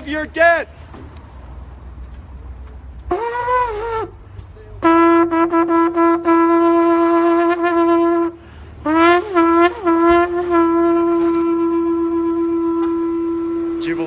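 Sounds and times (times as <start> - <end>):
ram's horn blasts: 3.0 - 14.0.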